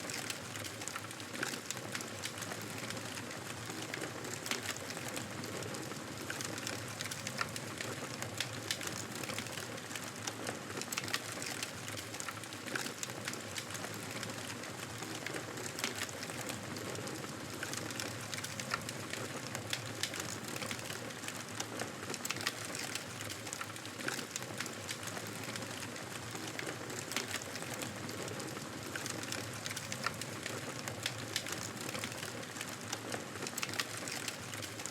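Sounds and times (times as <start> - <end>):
campfire crackling and popping: 6.2 - 9.8, 10.8 - 34.9.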